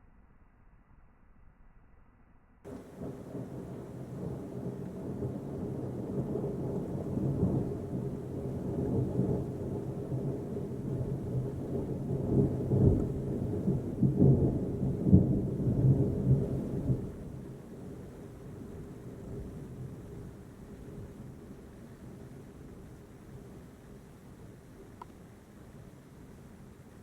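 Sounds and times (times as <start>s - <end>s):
deep roll of thunder: 2.7s - 23.6s.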